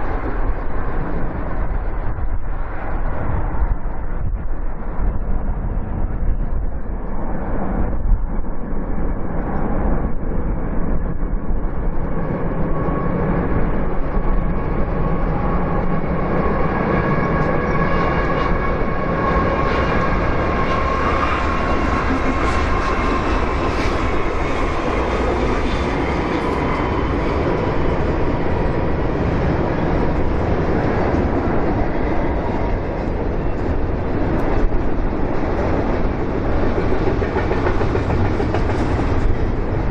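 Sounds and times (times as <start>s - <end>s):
freight train rumbling: 0.0s - 39.9s
wheels clickety-clack: 35.4s - 39.9s.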